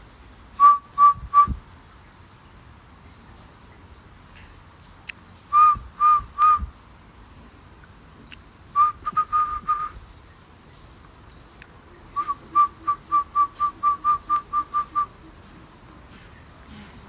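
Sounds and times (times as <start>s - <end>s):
person whistling short notes: 0.6s - 1.6s, 5.5s - 6.7s, 8.8s - 10.0s, 12.2s - 15.1s.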